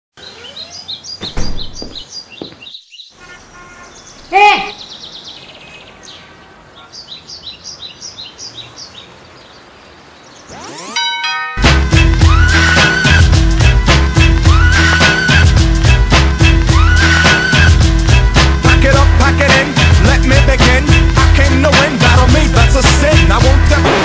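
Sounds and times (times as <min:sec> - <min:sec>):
birds chirping: 0:00.1 - 0:11.5
thump: 0:01.2 - 0:02.5
loud sound falling in pitch: 0:10.5 - 0:13.3.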